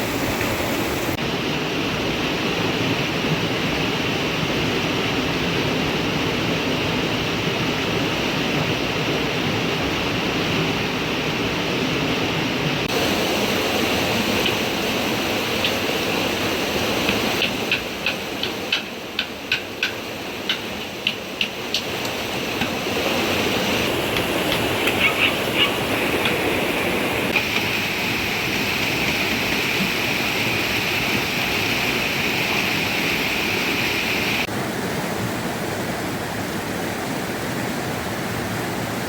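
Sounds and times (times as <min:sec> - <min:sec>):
rushing water: 0:00.0 - 0:39.0.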